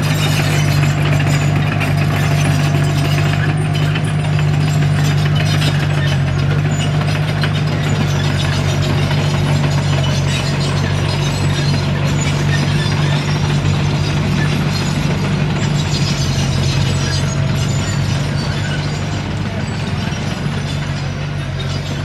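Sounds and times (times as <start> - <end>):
bulldozer diesel engine running: 0.0 - 22.0
mechanical clatter of tracks: 0.0 - 22.0.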